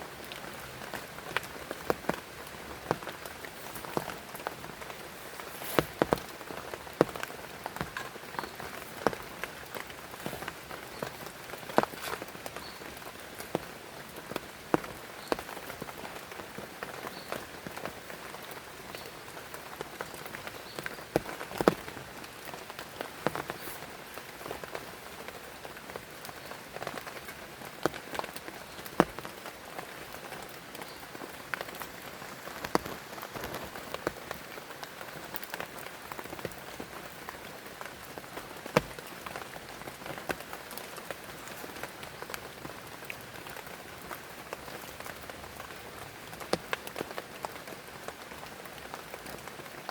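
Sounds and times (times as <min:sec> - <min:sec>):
steady rain hiss: 0:00.0 - 0:49.9.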